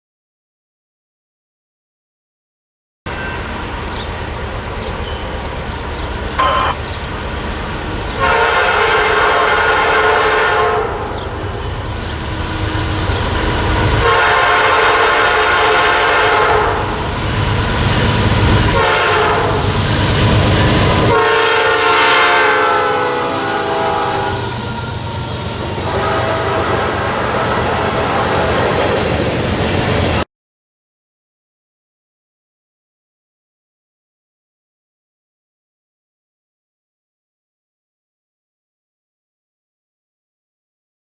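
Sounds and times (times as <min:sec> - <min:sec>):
train rumbling: 0:03.1 - 0:30.3
train air horn blasts: 0:05.8 - 0:07.0, 0:08.1 - 0:28.9.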